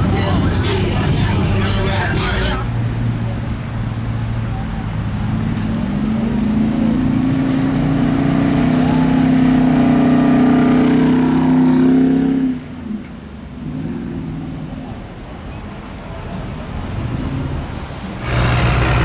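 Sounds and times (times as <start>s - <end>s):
truck engine revving: 0.0s - 11.8s, 18.2s - 19.0s
passing traffic: 0.0s - 19.0s.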